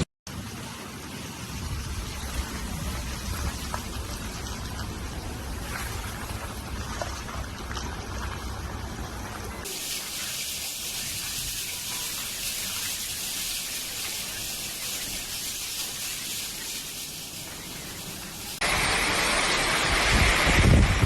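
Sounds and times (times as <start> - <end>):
storm water hissing: 0.3 - 7.1, 9.6 - 21.0
low rumbling noise: 0.3 - 9.6.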